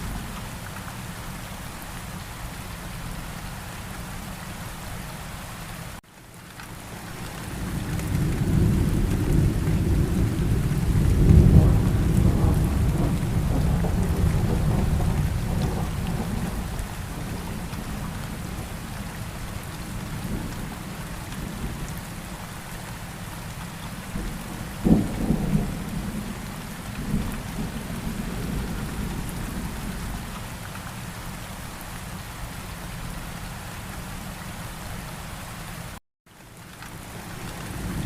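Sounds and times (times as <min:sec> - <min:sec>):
steady rainfall: 0:00.0 - 0:38.0
thunder rumble: 0:07.5 - 0:21.9, 0:24.1 - 0:30.3.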